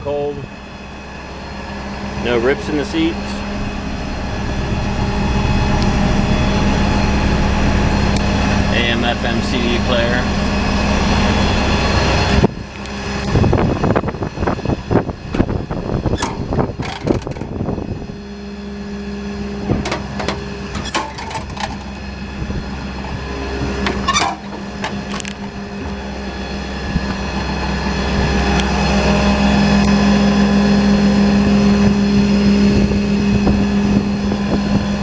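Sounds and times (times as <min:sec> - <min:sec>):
diesel engine idling: 0:00.0 - 0:33.1
clicks and knocks: 0:16.2 - 0:17.6, 0:19.7 - 0:22.0, 0:23.0 - 0:26.0.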